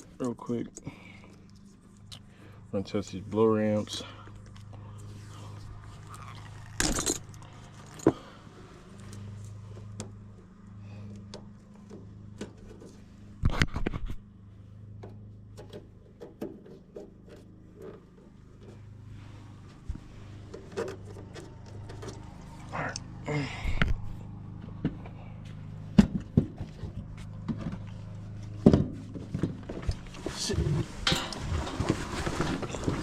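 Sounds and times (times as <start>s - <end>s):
furnace blower motor hum: 0.0s - 33.0s
tools clattering: 6.8s - 8.2s, 31.0s - 33.0s.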